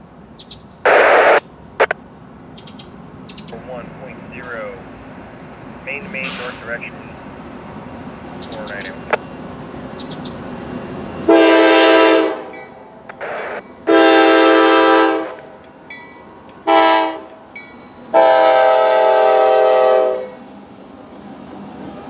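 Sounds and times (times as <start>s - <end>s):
locomotive air horn blasts: 11.2s - 12.6s, 13.2s - 15.6s, 16.6s - 17.4s, 18.1s - 20.4s.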